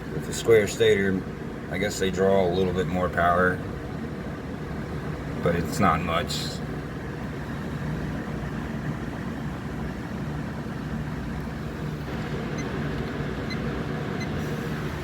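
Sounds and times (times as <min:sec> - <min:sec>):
box fan motor hum: 0:00.0 - 0:15.0
rush of air from fan blades: 0:06.3 - 0:15.0.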